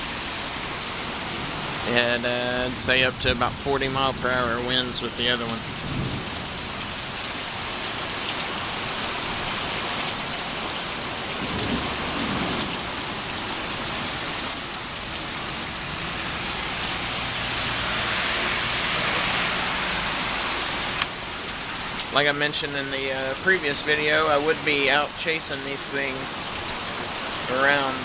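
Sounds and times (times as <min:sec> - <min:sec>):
heavy rain falling: 0:00.0 - 0:28.0
thunder rumbling: 0:01.6 - 0:07.2, 0:11.2 - 0:14.3.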